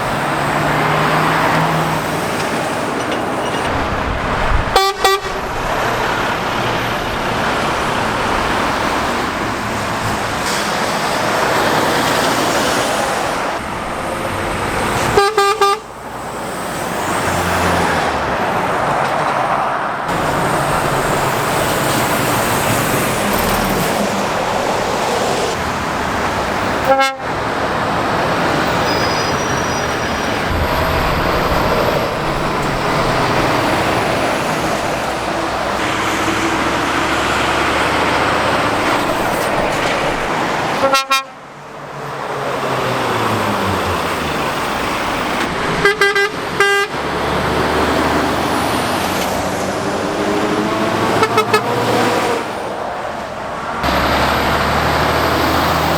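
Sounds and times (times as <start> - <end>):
road traffic passing: 0.0 - 55.9
vehicle horn toot: 4.7 - 5.6, 15.1 - 15.9, 26.8 - 27.3, 40.8 - 41.4, 45.8 - 47.0, 51.1 - 51.8.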